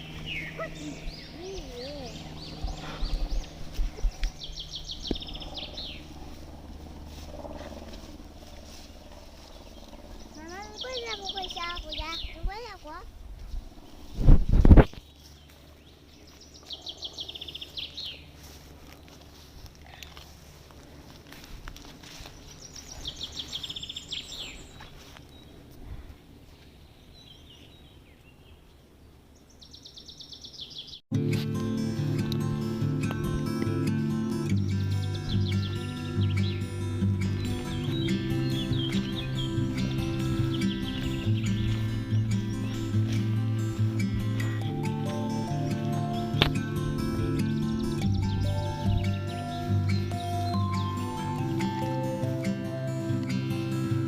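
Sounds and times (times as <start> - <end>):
songbird trilling: 0.0 - 6.2, 9.6 - 12.4, 22.4 - 24.8, 33.6 - 52.8.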